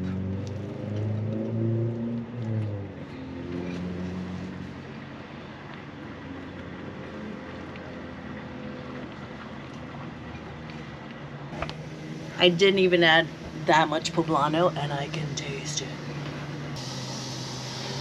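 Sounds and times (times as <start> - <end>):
truck engine running: 11.5 - 18.0.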